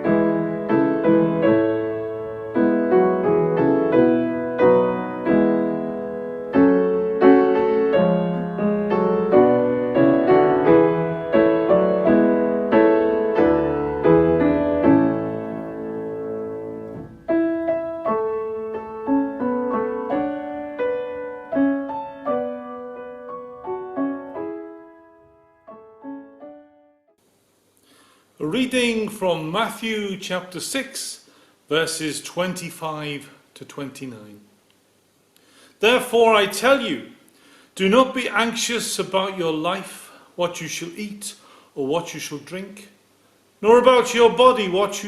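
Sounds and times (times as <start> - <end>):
piano playing chords: 0.0 - 27.2.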